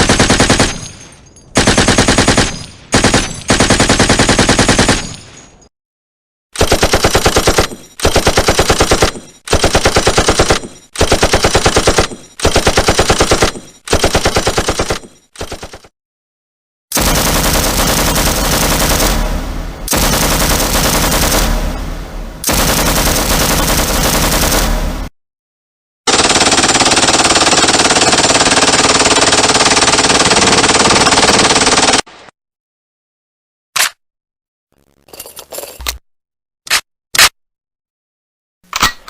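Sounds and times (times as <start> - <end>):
automatic gunfire: 0.0 - 0.9, 1.6 - 5.2, 6.6 - 15.9, 16.9 - 25.0, 26.1 - 32.1.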